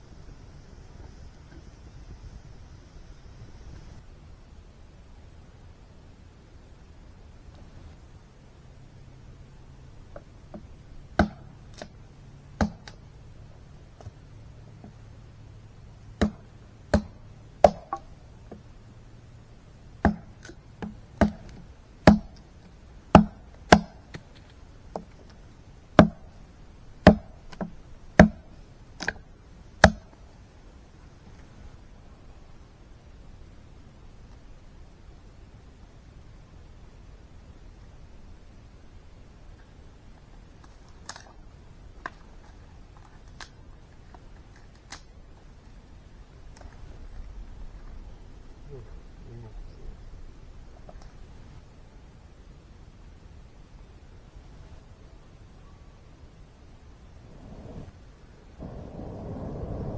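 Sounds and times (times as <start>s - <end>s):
low steady rumble: 0.0s - 59.9s
sharp chopping knocks: 11.2s - 11.9s, 12.6s - 13.0s, 16.2s - 16.4s, 17.0s - 18.0s, 20.0s - 20.4s, 21.2s - 22.4s, 23.2s - 24.0s, 27.1s - 28.4s.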